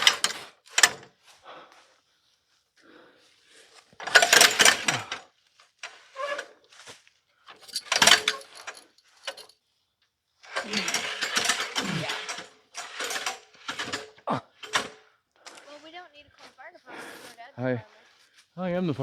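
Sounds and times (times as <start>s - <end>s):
ladder rails sliding: 0.0s - 1.1s, 3.8s - 5.2s, 5.8s - 6.9s, 7.5s - 9.5s, 10.4s - 15.7s
ladder rung locks clattering: 4.0s - 5.1s, 7.6s - 9.5s.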